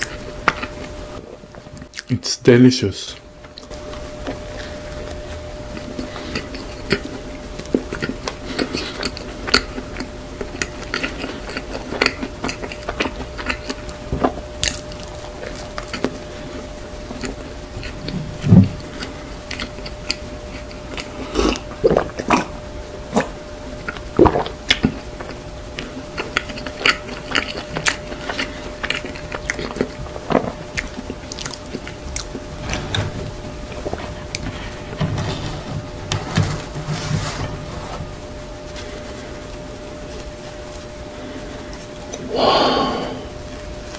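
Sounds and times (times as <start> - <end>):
chewing soft bread: 0.0 - 2.2, 3.1 - 35.0, 38.0 - 43.9
gulping milk: 15.6 - 32.4.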